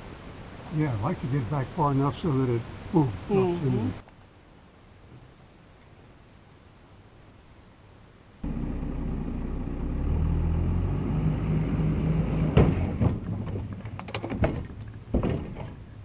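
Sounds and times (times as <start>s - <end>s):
truck engine running: 8.4s - 13.1s
sharp knocks and clunks: 12.4s - 16.0s.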